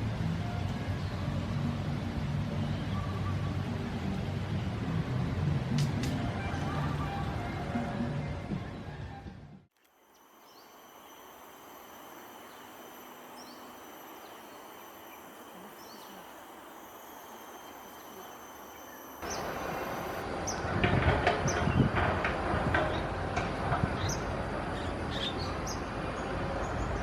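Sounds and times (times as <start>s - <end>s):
insects trilling: 9.8s - 20.2s
bird chirps: 10.0s - 20.2s.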